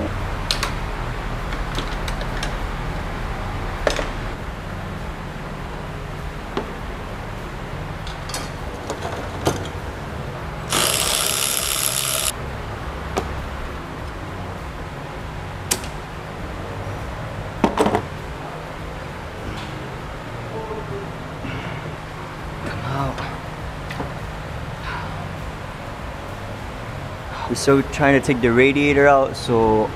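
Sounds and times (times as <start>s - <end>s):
steady low hum: 0.0s - 29.9s
loud hiss: 10.7s - 12.3s.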